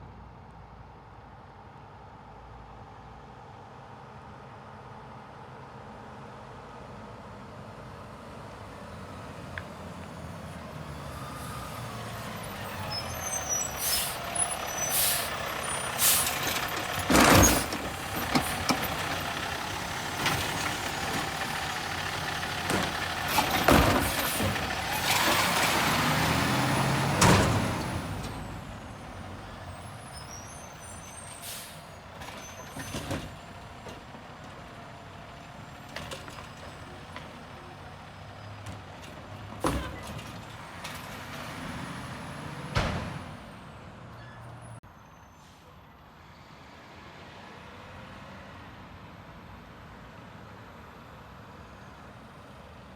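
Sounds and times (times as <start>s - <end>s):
garbage truck engine and machinery: 7.7s - 46.0s
air brakes hissing: 11.1s - 33.3s, 44.2s - 45.8s.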